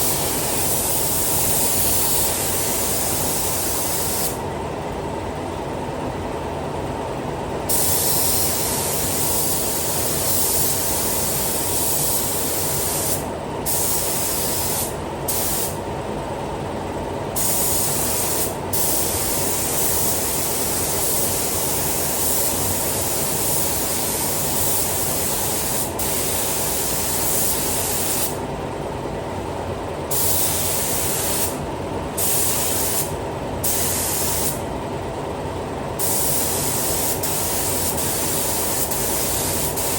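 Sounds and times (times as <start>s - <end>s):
paint spray gun hissing: 0.0s - 4.4s, 7.7s - 15.8s, 17.4s - 28.4s, 30.1s - 31.6s, 32.2s - 34.6s, 36.0s - 39.9s.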